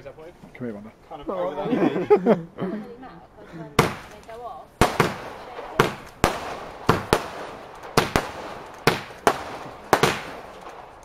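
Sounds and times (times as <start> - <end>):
fireworks bangs with echo: 3.8 - 11.0.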